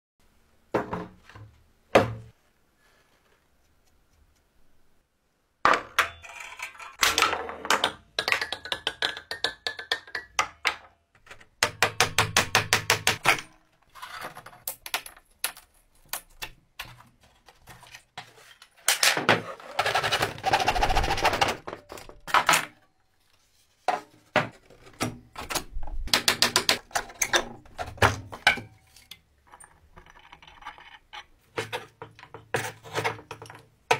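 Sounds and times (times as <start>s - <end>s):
knocks and thuds on wood: 1.9s - 2.3s.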